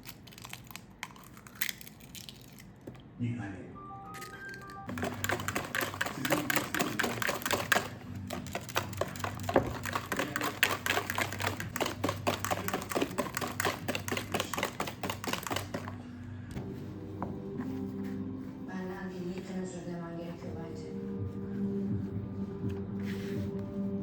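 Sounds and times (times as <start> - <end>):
keyboard typing: 4.2 - 16.0.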